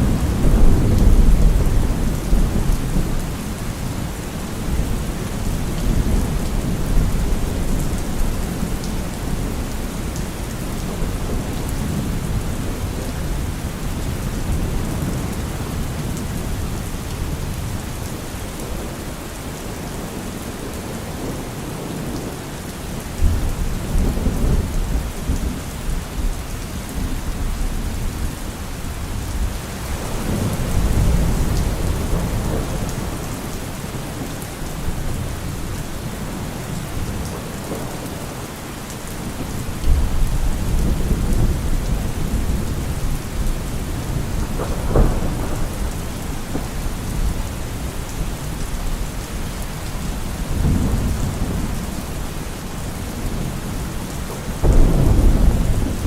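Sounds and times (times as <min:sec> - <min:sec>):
rolling thunder: 0:00.0 - 0:18.2, 0:29.1 - 0:38.0, 0:39.2 - 0:49.0, 0:49.6 - 0:56.0
steady rain: 0:00.0 - 0:56.0
sharp thunderclap: 0:44.1 - 0:47.7, 0:54.6 - 0:56.0.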